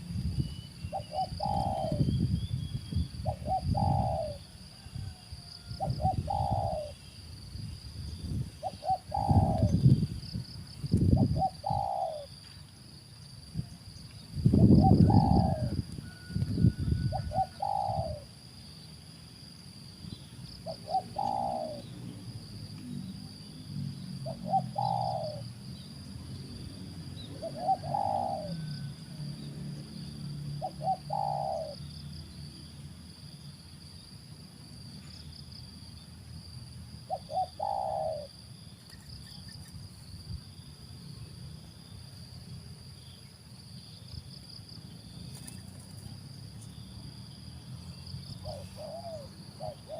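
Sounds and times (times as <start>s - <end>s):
dove cooing: 0.9s - 2.1s, 3.2s - 7.0s, 8.6s - 10.0s, 11.1s - 12.3s, 14.6s - 18.4s, 20.6s - 22.0s, 24.2s - 25.5s, 27.2s - 29.1s, 30.6s - 31.9s, 37.0s - 38.4s, 48.3s - 49.9s.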